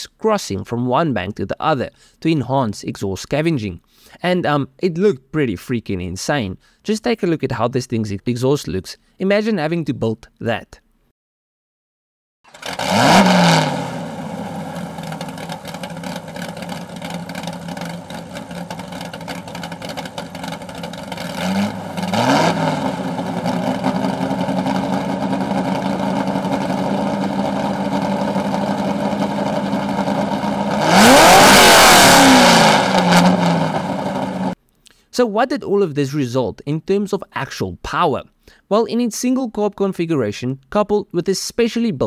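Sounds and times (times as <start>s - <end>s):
car engine idling and revving: 12.5s - 34.6s.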